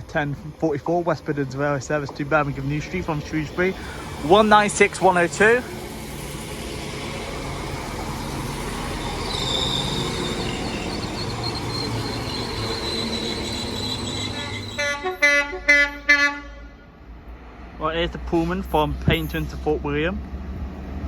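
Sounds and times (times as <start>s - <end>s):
train rumbling past: 0.0s - 21.0s
high wheel squeal: 3.2s - 15.2s
train horn toots: 9.3s - 16.9s.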